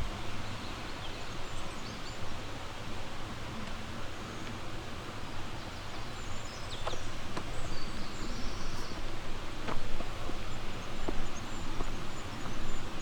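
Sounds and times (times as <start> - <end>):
soft footsteps on a path: 6.8 - 13.0.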